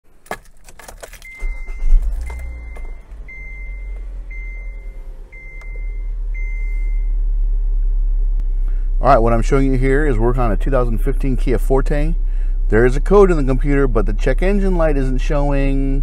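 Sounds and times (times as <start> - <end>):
car engine starting and idling: 0.1 - 16.0
dashboard warning chime: 1.2 - 7.2.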